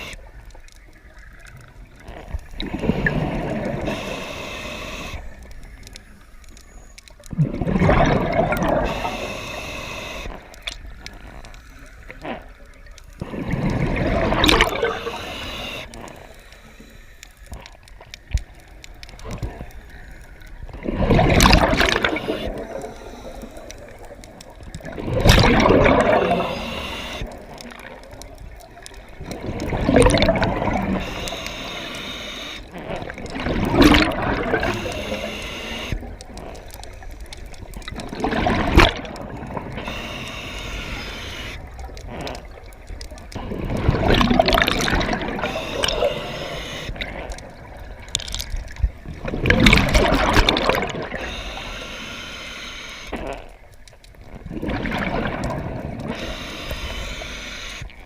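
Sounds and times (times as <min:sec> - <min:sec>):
bubbles gurgling under water: 0:01.0 - 0:04.2, 0:07.2 - 0:09.3, 0:12.3 - 0:15.7, 0:20.5 - 0:31.4, 0:32.7 - 0:40.2, 0:40.8 - 0:51.5, 0:54.2 - 0:57.3
regulator hiss: 0:03.0 - 0:05.5, 0:08.8 - 0:10.4, 0:14.8 - 0:17.4, 0:26.2 - 0:27.4, 0:30.9 - 0:32.7, 0:34.6 - 0:36.1, 0:39.8 - 0:41.7, 0:45.4 - 0:47.0, 0:51.1 - 0:53.1, 0:56.1 - 0:58.0.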